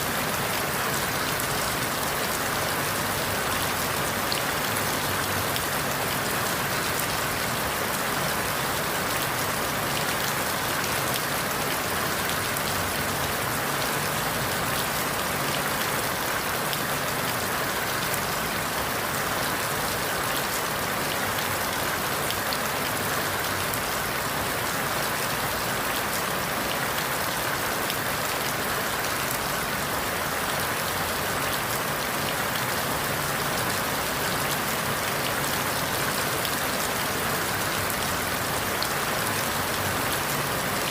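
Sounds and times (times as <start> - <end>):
rain falling through leaves: 0.0 - 40.9.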